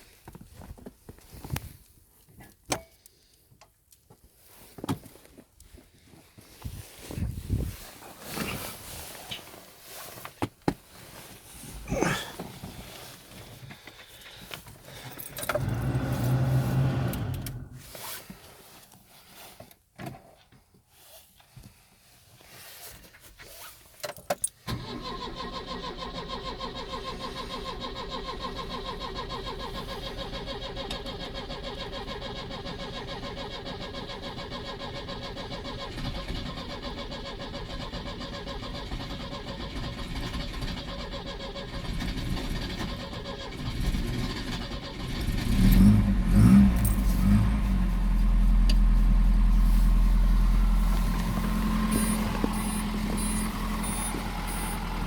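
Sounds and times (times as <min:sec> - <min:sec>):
car engine starting and running: 0:14.5 - 0:18.0, 0:24.7 - 0:55.0.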